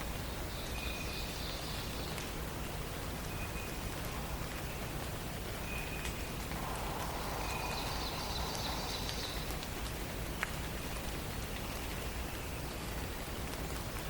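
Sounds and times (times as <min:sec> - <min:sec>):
steady hiss with faint patter: 0:00.0 - 0:14.0
songbird high trilling song: 0:06.8 - 0:09.6.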